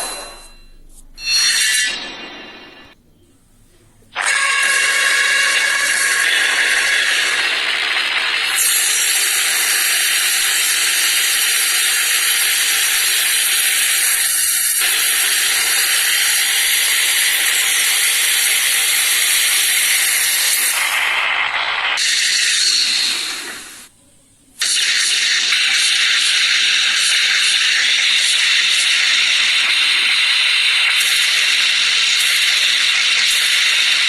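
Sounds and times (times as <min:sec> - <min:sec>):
loud steady hiss: 0:24.6 - 0:34.0.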